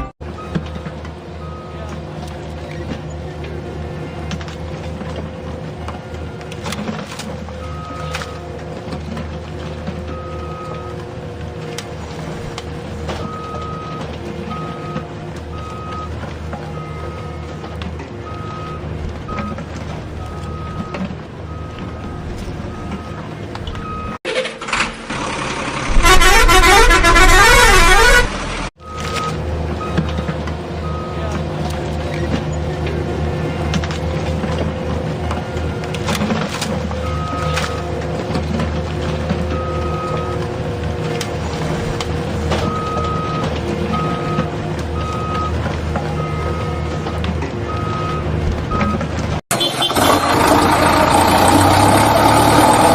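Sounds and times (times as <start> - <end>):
low engine drone: 0.0 - 52.9
reversing alarm beeps: 1.4 - 1.9, 7.6 - 8.4, 10.1 - 10.9, 13.2 - 19.6, 20.2 - 24.2, 28.8 - 30.1, 30.8 - 31.3, 37.0 - 37.8, 42.6 - 47.0, 47.7 - 49.0
warbling horn-like tone: 25.9 - 28.7.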